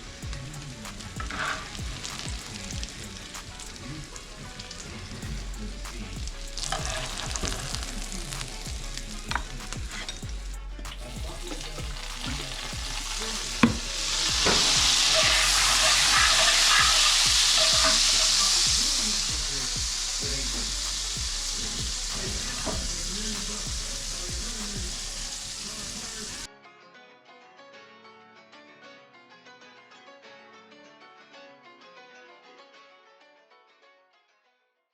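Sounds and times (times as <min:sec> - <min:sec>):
food sizzling in a pan: 0:00.0 - 0:26.5.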